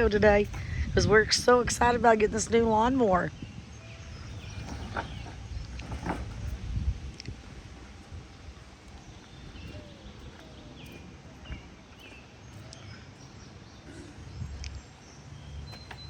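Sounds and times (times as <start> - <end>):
low steady rumble: 0.0 - 13.6
bird chirps: 3.3 - 6.6, 8.1 - 16.0.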